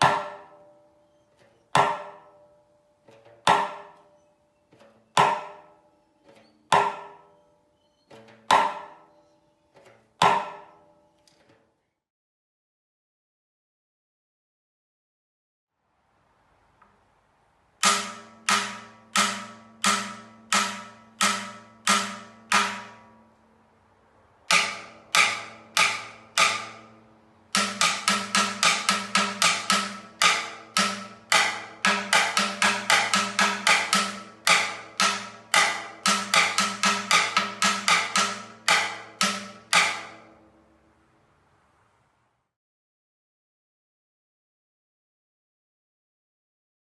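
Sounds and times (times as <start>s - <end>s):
timbales being played: 24.5s - 40.6s.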